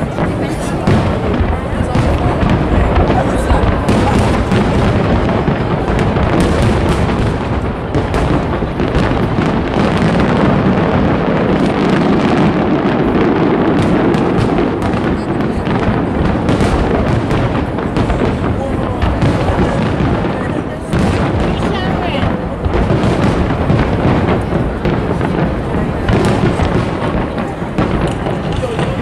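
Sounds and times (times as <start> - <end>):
fireworks booming: 0.0 - 29.0
fireworks cracking and popping: 0.0 - 29.0.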